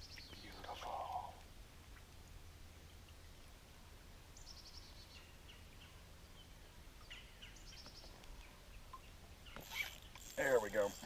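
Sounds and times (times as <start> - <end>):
low steady rumble: 0.0 - 7.8.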